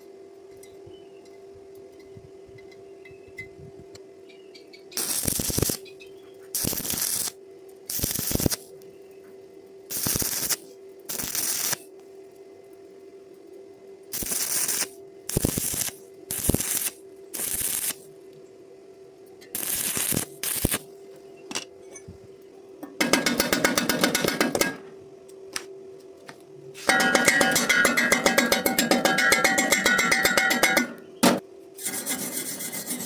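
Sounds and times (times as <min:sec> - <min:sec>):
steady hum: 0:00.0 - 0:33.0
welding arc crackling: 0:05.0 - 0:05.9, 0:06.5 - 0:08.7, 0:09.9 - 0:11.9, 0:14.1 - 0:18.1, 0:19.5 - 0:20.9, 0:26.8 - 0:32.0.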